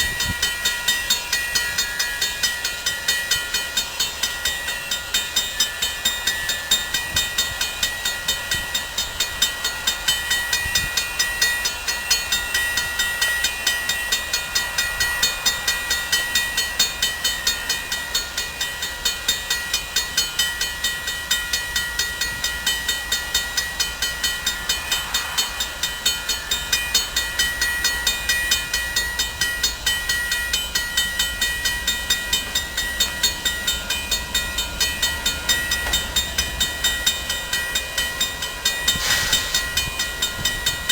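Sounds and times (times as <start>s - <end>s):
train with rhythmic beat: 0.0s - 40.9s
steady high tones: 21.8s - 40.9s.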